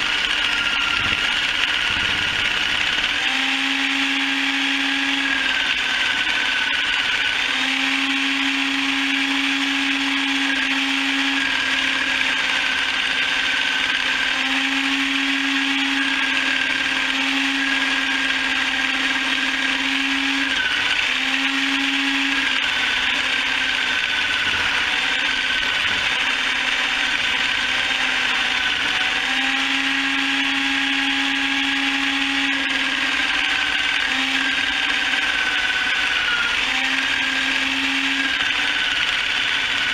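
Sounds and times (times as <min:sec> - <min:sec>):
chicken plucker motor humming: 0:00.0 - 0:39.9.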